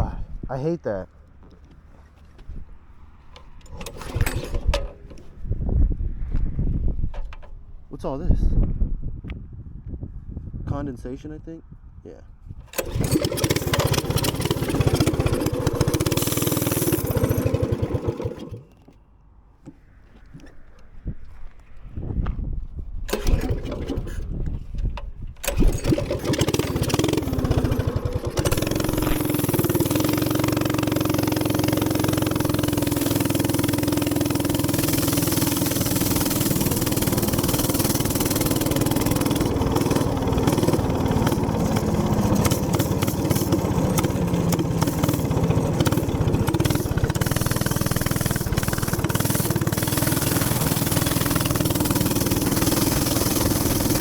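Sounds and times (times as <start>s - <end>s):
wind noise on microphone: 0.0s - 0.5s, 2.4s - 2.8s, 3.6s - 13.4s, 20.0s - 26.2s
small gas engine starting and running: 3.0s - 5.4s, 12.6s - 19.0s, 23.1s - 54.0s.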